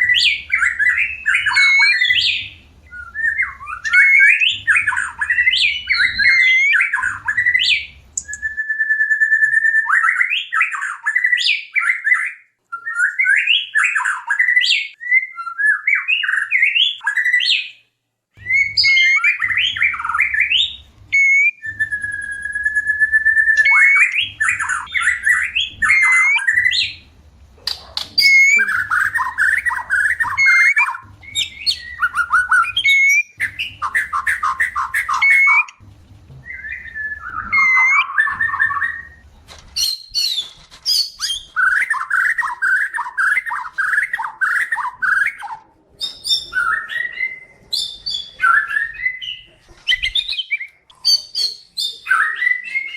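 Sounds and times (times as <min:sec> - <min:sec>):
bird singing varied song: 0:00.0 - 0:17.8, 0:18.4 - 0:35.8, 0:36.4 - 0:52.9
long steady bird whistle: 0:00.0 - 0:17.8, 0:18.4 - 0:27.0, 0:28.2 - 0:35.8, 0:36.5 - 0:39.2.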